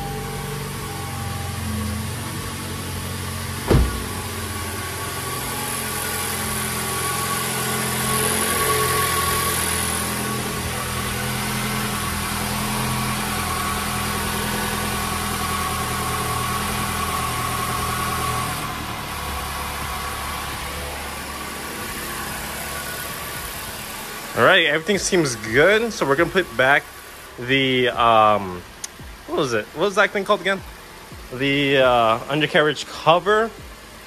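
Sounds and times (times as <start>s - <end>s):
car engine idling: 0.0s - 34.0s
car door shutting: 3.6s - 4.5s.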